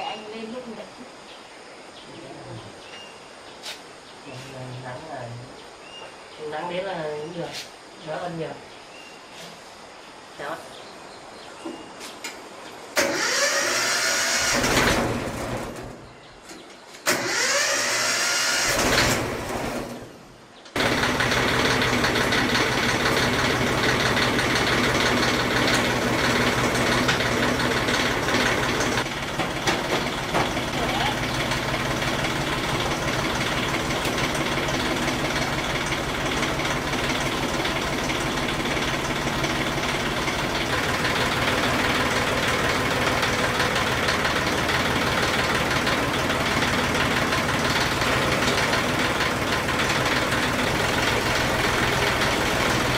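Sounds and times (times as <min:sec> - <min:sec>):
diesel truck engine starting: 0:12.9 - 0:16.2, 0:17.0 - 0:52.9
diesel engine idling: 0:13.0 - 0:16.2, 0:17.1 - 0:52.9.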